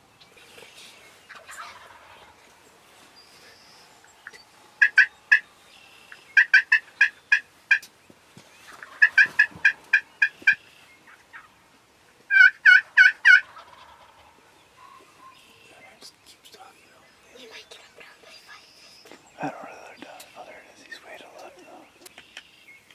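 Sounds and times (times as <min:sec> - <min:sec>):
turkey yelping: 0:01.3 - 0:02.3, 0:04.2 - 0:05.5, 0:06.1 - 0:07.9, 0:08.7 - 0:11.6, 0:12.3 - 0:15.4.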